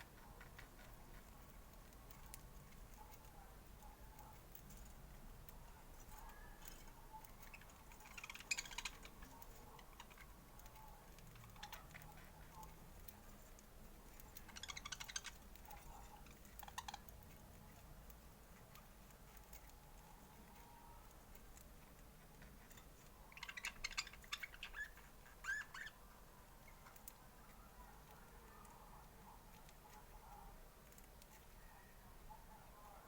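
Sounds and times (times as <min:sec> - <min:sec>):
rapid clicking trills: 0:00.0 - 0:26.0
budgerigars chattering: 0:07.5 - 0:09.2, 0:14.4 - 0:15.4, 0:23.2 - 0:26.0.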